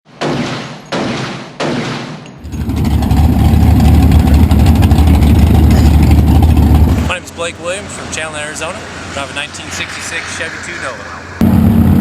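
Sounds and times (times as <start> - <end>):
engine running loud: 2.4 - 12.0.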